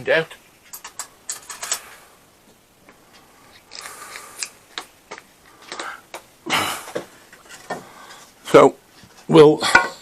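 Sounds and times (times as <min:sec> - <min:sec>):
hand tools clicking and rattling: 0:00.7 - 0:01.9.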